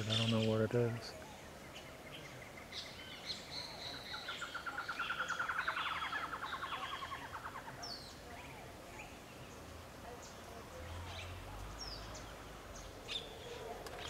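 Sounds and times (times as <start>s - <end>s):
other birds chirping: 0.0s - 14.0s
bird chattering call: 3.7s - 8.6s.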